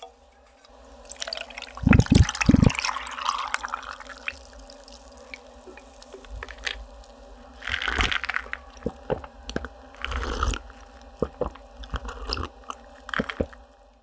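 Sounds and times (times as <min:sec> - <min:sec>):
squishy chewing: 0:04.3 - 0:13.6
crisp crackling bites: 0:06.4 - 0:09.0.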